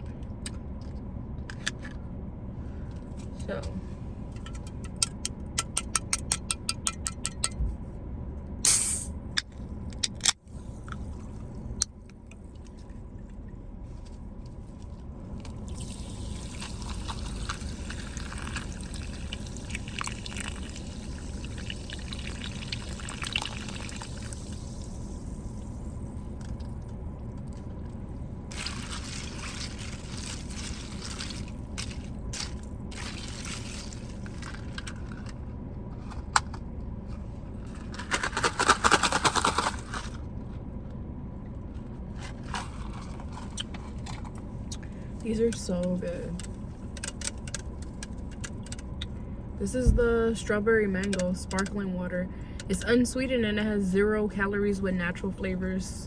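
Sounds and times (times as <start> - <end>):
sparkling water pouring over ice: 15.7 - 24.7.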